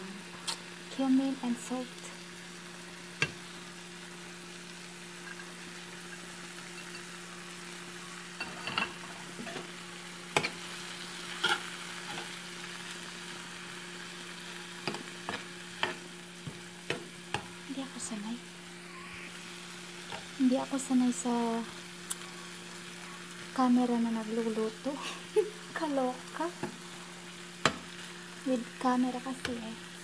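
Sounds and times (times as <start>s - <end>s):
vegetables sizzling in oil: 0.0s - 30.0s
utensils clinking against pan: 6.1s - 7.1s, 8.4s - 9.7s.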